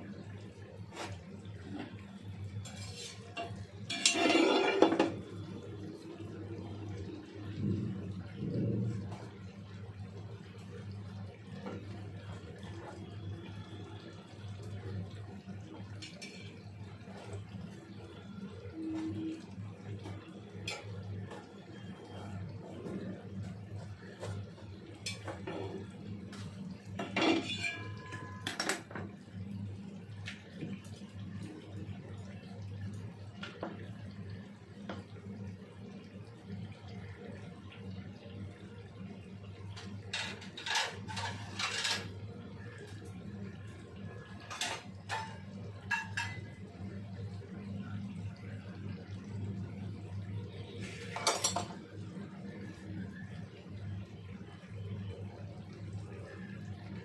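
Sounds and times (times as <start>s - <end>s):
metal utensils clattering on pot: 2.6s - 5.2s, 15.9s - 16.6s, 20.6s - 21.0s, 25.0s - 25.9s, 27.0s - 29.0s, 39.8s - 42.2s, 44.4s - 46.6s, 51.0s - 51.8s.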